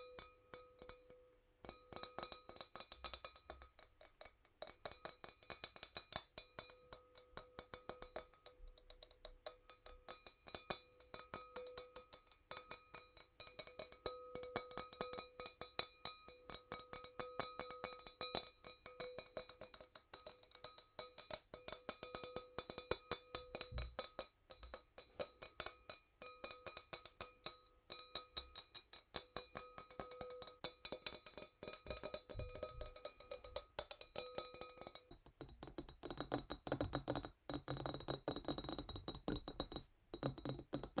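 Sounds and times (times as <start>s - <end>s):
fingernails tapping wine glass: 13.8s - 41.0s.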